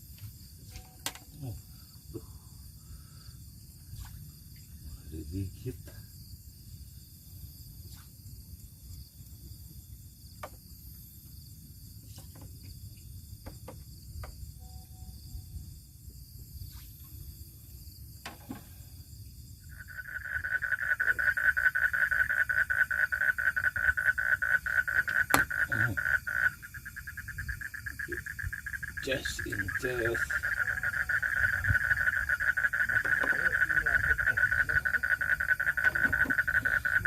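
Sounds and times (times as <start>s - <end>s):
animal pulsing trill: 19.7s - 37.0s.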